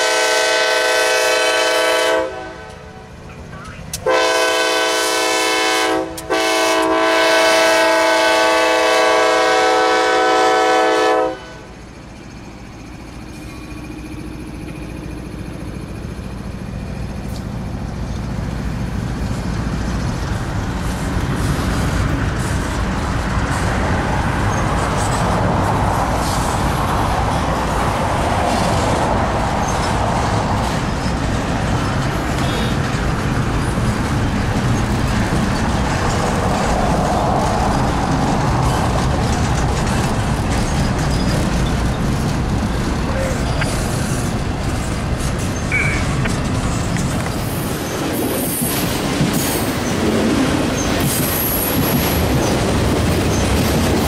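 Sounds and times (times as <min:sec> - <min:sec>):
locomotive air horn blasts: 0:00.0 - 0:03.1, 0:04.0 - 0:11.8
train cars rumbling past: 0:00.0 - 0:54.0.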